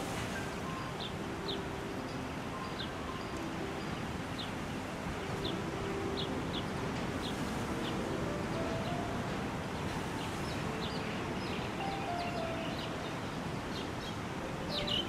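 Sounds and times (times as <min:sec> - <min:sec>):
outdoor background noise: 0:00.0 - 0:15.0
small bird chirping: 0:10.2 - 0:15.0.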